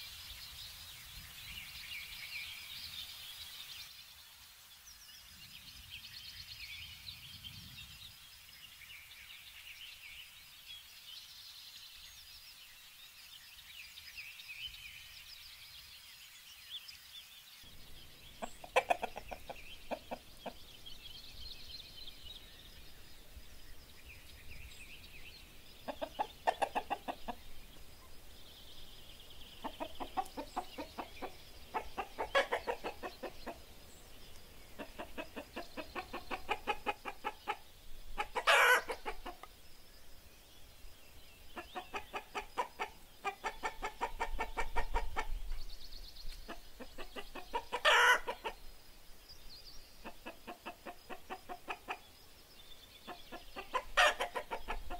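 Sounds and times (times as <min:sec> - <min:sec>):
faint songbird phrases: 0:00.0 - 0:54.9
hens clucking: 0:18.3 - 0:20.8, 0:25.8 - 0:27.5, 0:29.6 - 0:33.7, 0:34.7 - 0:39.5, 0:41.6 - 0:45.4, 0:46.5 - 0:48.6, 0:50.0 - 0:52.1, 0:53.1 - 0:54.9.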